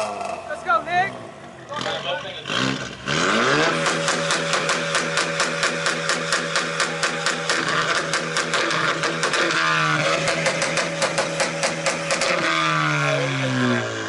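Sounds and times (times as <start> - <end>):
car engine running: 0.0 - 14.0
exhaust pops and bangs: 3.6 - 13.2.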